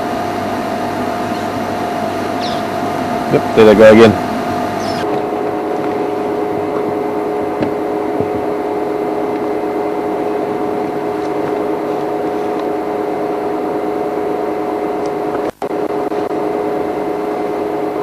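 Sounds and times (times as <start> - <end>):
two-pitch mechanical hum: 0.0 - 18.0.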